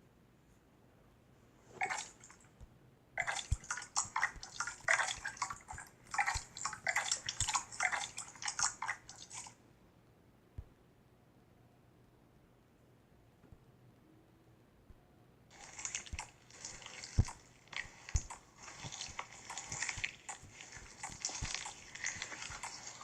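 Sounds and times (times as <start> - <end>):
slime squishing wet pops: 15.5 - 23.0.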